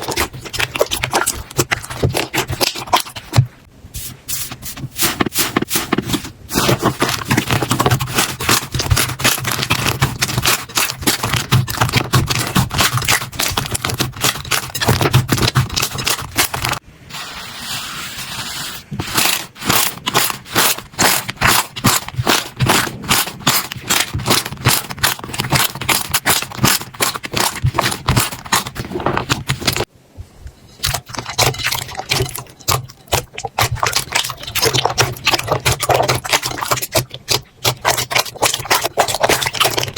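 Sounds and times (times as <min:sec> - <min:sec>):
slime squishing: 0:00.0 - 0:16.8, 0:18.0 - 0:29.9, 0:30.8 - 0:39.9
slime crackling and popping: 0:06.6 - 0:16.8, 0:19.1 - 0:29.9.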